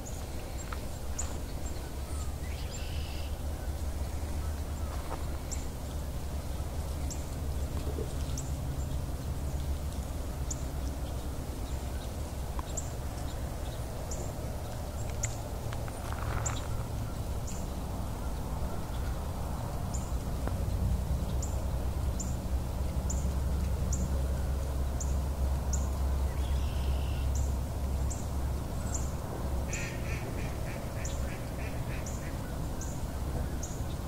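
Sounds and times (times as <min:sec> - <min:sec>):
steady low rumble: 0:00.0 - 0:26.6
bird high chip calls: 0:02.2 - 0:03.4, 0:29.7 - 0:32.4
rapid bird calls: 0:29.7 - 0:34.0.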